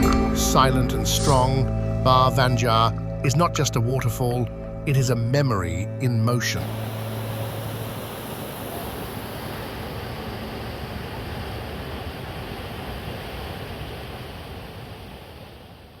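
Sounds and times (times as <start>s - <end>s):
waterfall roaring: 6.6s - 16.0s.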